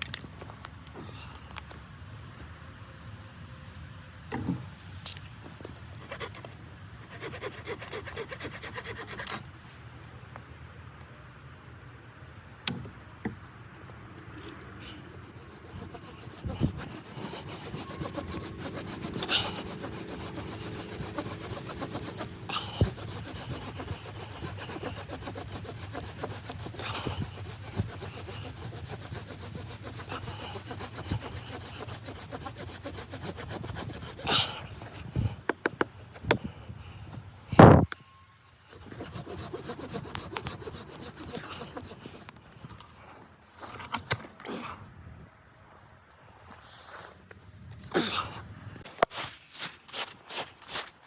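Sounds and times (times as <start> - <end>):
scraping strokes on wood: 5.7 - 9.5, 13.8 - 36.5, 38.6 - 42.6.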